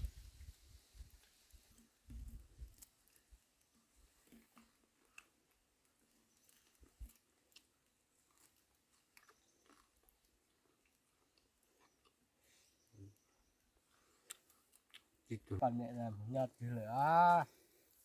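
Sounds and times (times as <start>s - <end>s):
person chewing food: 4.2s - 12.4s, 13.8s - 15.2s.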